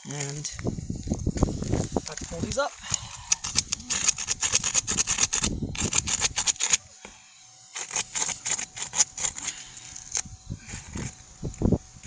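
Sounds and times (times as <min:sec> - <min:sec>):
shingles scraping and crackling: 0:07.8 - 0:10.2.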